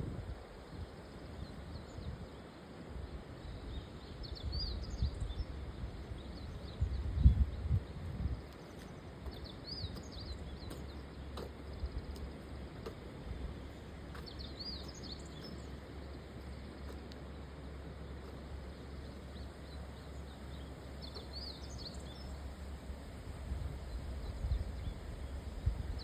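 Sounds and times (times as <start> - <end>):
small birds chirping: 3.4 - 22.7.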